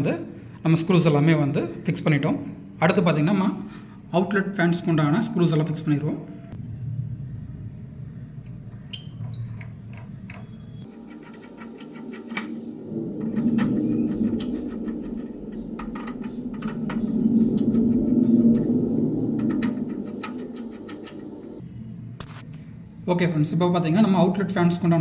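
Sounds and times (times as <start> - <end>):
metal scraping: 10.4 - 21.6
low whirr: 11.6 - 22.2.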